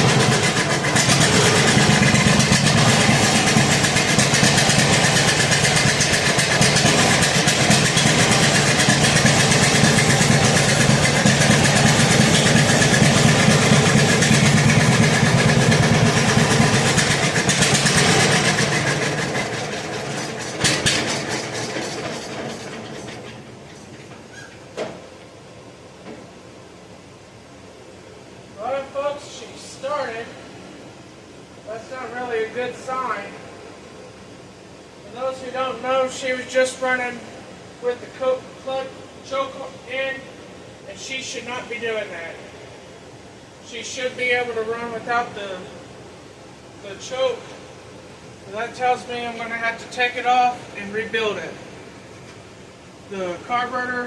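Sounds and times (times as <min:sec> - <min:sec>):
gasoline engine running: 0:00.0 - 0:25.1.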